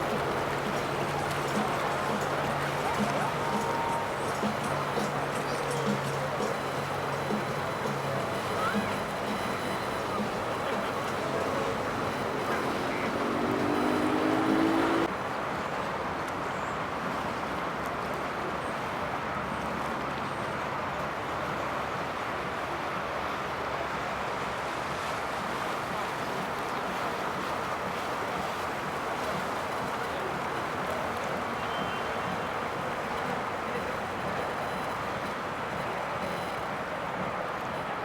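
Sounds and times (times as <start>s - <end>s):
boat engines rumbling: 0.0s - 16.2s, 25.6s - 38.0s
water wash: 0.0s - 38.0s.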